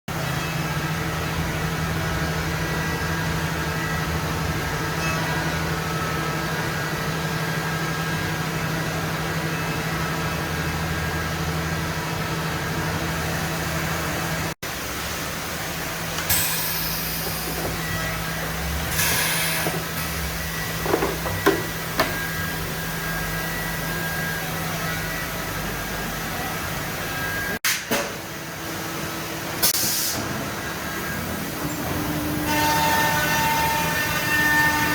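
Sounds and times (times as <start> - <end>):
machine motors humming: 7.9 - 27.3.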